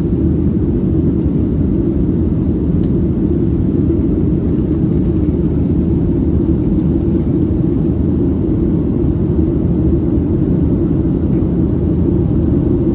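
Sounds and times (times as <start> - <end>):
jet engines rumbling: 0.0 - 12.9.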